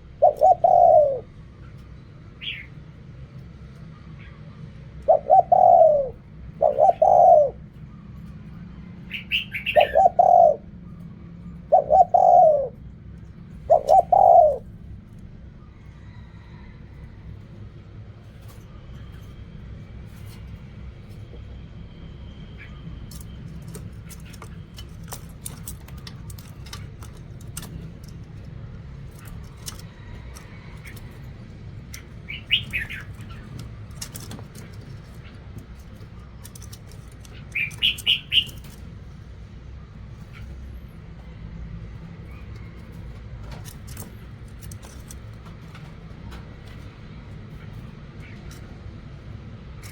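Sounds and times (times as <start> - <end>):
bird chirps: 2.4 - 2.8, 9.1 - 12.7, 32.0 - 33.7, 37.3 - 38.8.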